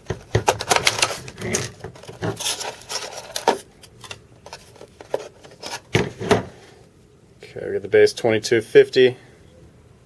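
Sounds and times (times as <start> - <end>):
trading cards clicking and rustling: 0.0 - 6.5.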